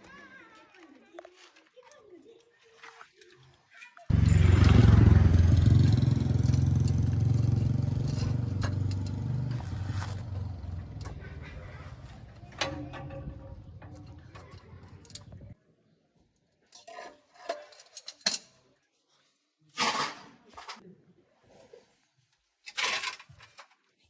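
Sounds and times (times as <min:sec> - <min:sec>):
engine running with low hum: 0:04.1 - 0:15.6.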